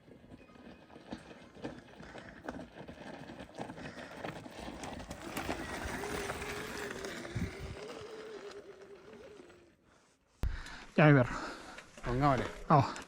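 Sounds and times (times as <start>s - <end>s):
bike tyres on dirt trail: 0.0s - 13.0s
loose stones crunching: 0.2s - 9.7s.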